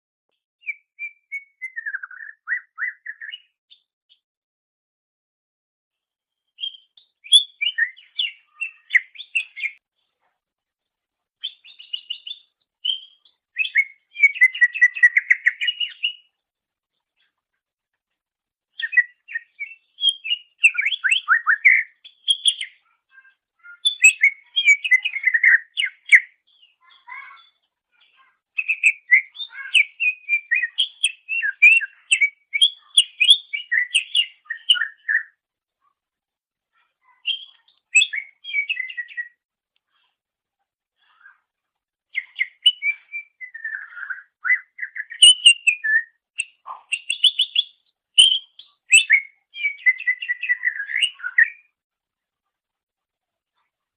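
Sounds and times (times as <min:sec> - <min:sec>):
bird singing chirps and trills: 0:00.6 - 0:03.8, 0:06.5 - 0:09.8, 0:11.4 - 0:16.4, 0:18.7 - 0:35.4, 0:36.7 - 0:39.4, 0:42.1 - 0:51.7.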